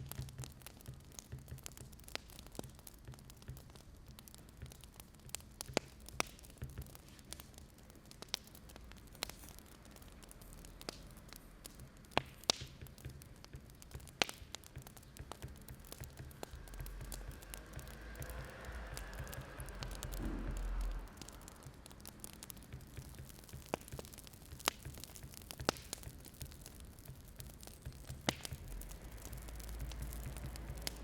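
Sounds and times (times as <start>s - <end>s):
wood fire crackling: 0.0s - 31.0s
low rumble: 16.2s - 22.2s.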